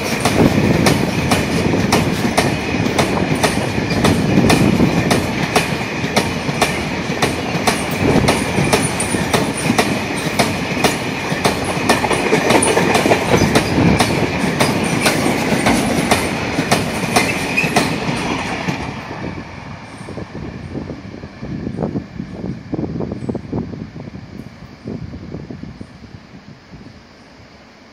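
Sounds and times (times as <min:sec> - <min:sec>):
wheels squealing on rails: 0:00.0 - 0:06.2, 0:07.0 - 0:23.4
train wheels clicking over rail joints: 0:00.0 - 0:19.1
train rumble: 0:00.0 - 0:27.9.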